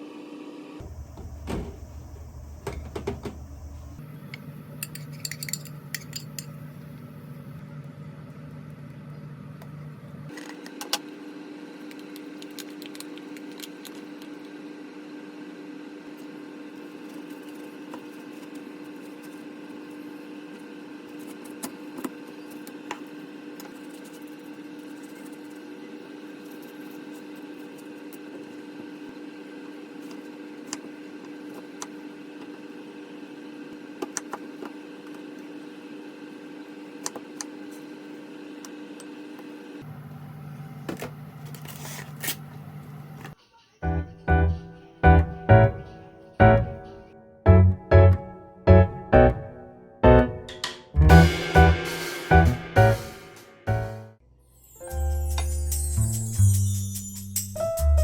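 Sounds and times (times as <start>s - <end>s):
steady hum: 0.8s - 7.6s, 43.2s - 54.2s
dishes and utensils clinking: 4.8s - 6.6s.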